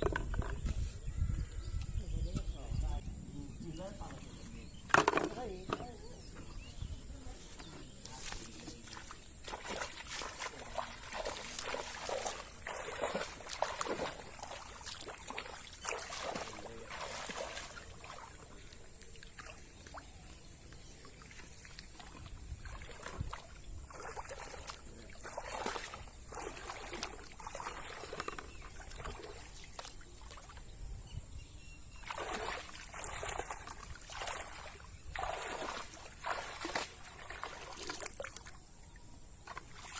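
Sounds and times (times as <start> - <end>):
water trickling and sloshing: 3.8 - 31.3, 31.9 - 39.9.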